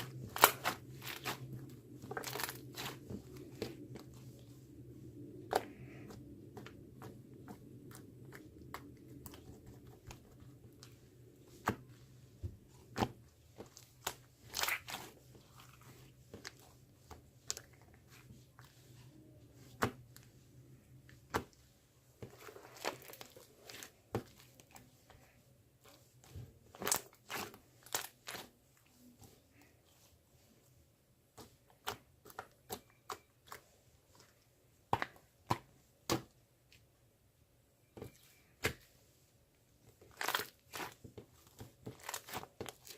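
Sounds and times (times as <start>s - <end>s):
crinkling: 0.0s - 4.7s, 22.2s - 30.1s, 39.8s - 42.9s
faint low hum: 0.0s - 42.9s.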